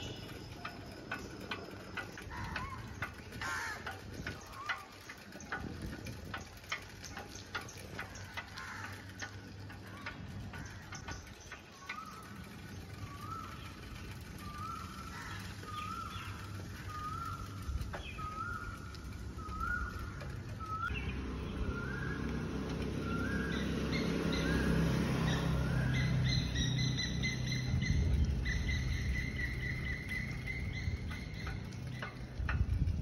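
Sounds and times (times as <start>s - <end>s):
high trilling bird call: 9.8s - 32.2s
bird rising call: 9.9s - 32.1s.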